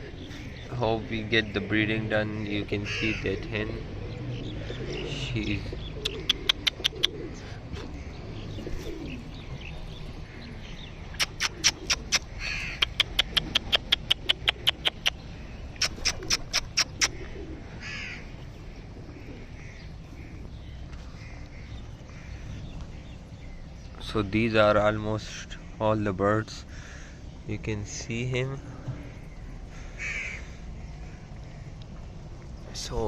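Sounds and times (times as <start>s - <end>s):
harsh bird call: 2.8s - 23.6s, 28.4s - 31.8s
birds rapid clicking calls: 4.4s - 33.0s.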